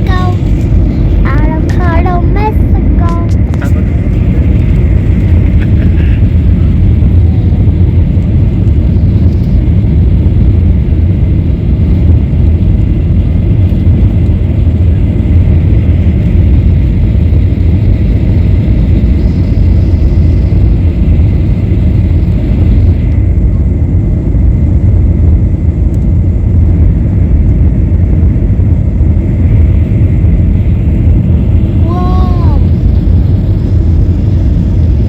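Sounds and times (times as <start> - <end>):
airflow noise: 0.0 - 35.0
airliner engine rumble in cabin: 0.0 - 35.0.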